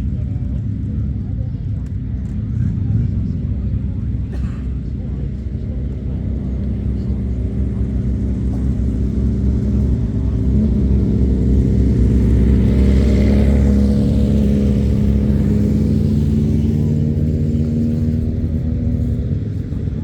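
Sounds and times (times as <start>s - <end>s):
motorcycle engines running: 0.0s - 20.0s.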